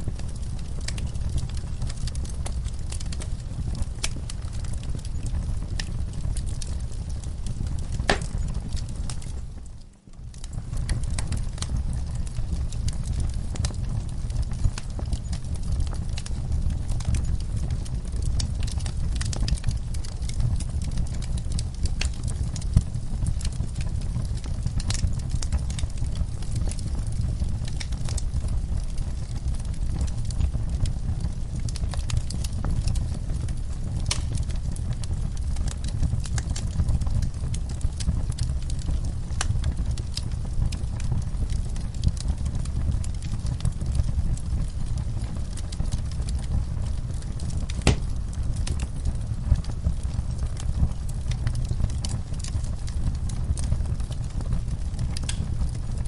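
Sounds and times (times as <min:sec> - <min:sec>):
wood fire crackling and popping: 0:00.0 - 0:56.0
steady low rumble: 0:46.0 - 0:51.4.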